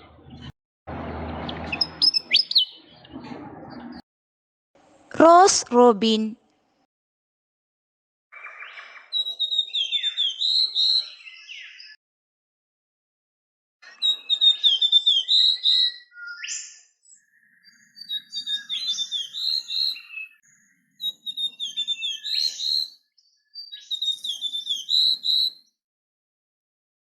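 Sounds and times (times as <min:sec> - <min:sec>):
bird chattering and trilling: 0:01.4 - 0:03.0, 0:17.3 - 0:20.4, 0:21.0 - 0:22.9, 0:23.7 - 0:25.5.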